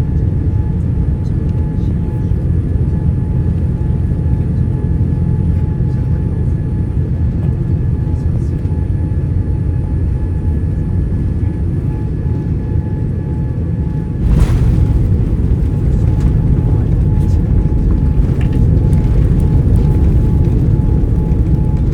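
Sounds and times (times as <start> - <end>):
jet airliner rumble: 0.0 - 21.9
loud rush of air: 14.2 - 19.3.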